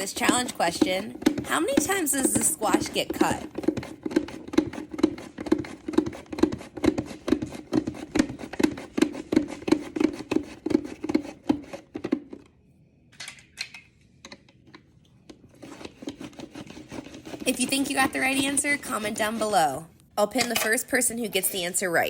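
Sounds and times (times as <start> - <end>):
vegetable chopper cutting squash: 0.0 - 12.4, 15.5 - 19.8.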